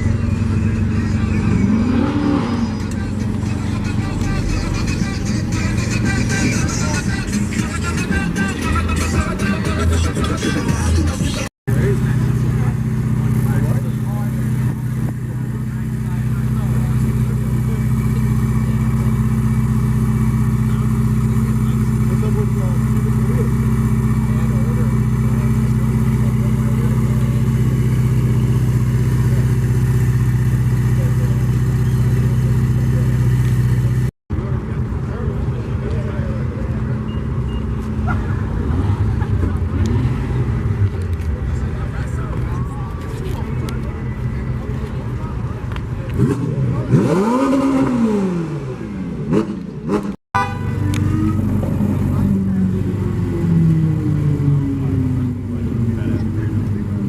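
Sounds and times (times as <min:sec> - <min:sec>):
vehicle engine idling: 0:00.0 - 0:47.3, 0:50.4 - 0:57.0.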